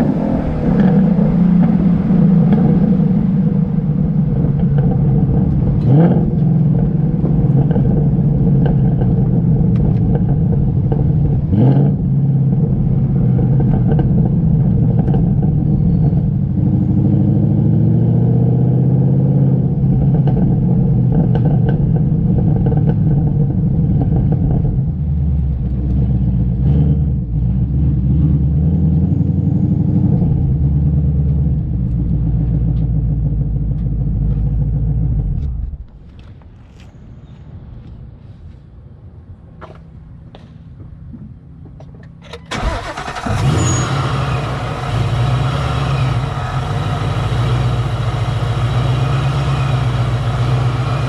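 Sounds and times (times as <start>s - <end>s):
car engine exhaust note: 0.0s - 35.8s, 42.5s - 51.0s.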